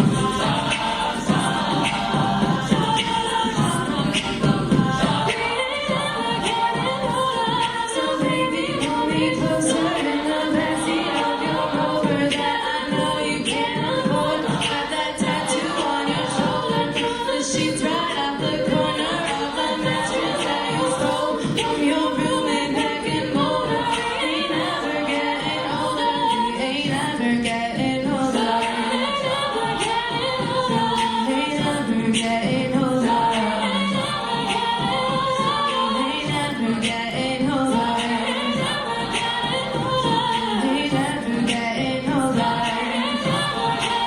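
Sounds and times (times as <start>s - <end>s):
a cappella group singing in harmony: 0.0s - 44.0s
vocal percussion beat: 0.0s - 44.0s.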